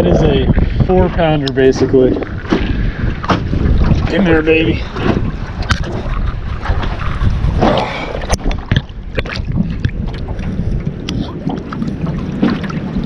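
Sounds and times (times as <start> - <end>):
wind buffeting microphone: 0.0 - 13.0
sharp knocks: 2.4 - 3.6.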